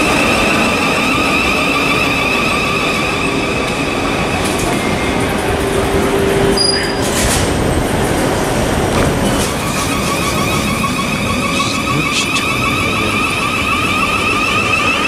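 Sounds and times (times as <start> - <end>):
train wheels rumbling on rails: 0.0 - 15.0
sharp squeal: 6.6 - 7.0.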